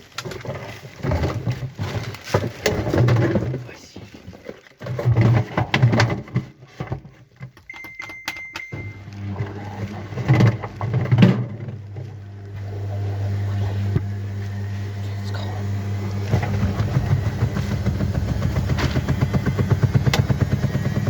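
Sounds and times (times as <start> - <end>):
washing machine beep: 7.7 - 9.8
washing machine motor humming: 7.9 - 21.0
washing machine knocks: 16.3 - 21.0.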